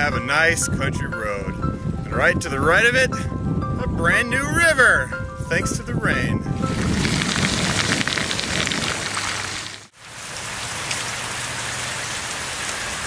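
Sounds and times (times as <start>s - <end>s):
rushing water hiss: 6.7s - 13.0s.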